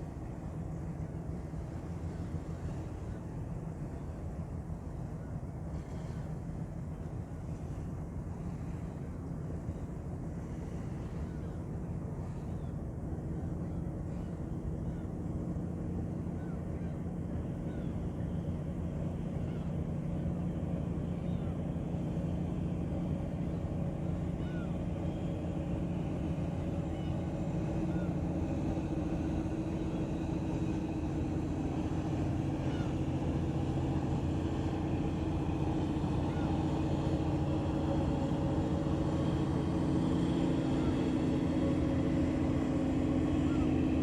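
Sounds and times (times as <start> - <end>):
ship engine humming: 0.0 - 44.0.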